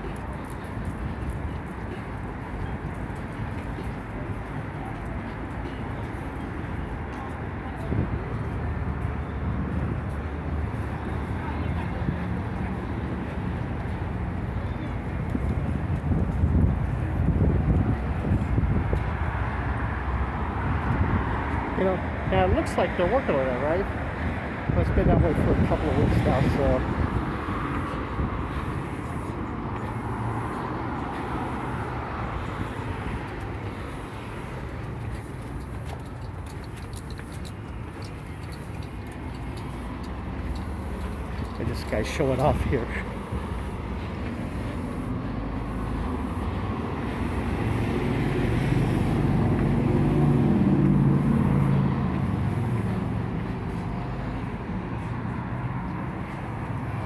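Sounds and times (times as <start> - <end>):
city street traffic: 0.0 - 57.0
vehicle engine passing by: 39.5 - 57.0.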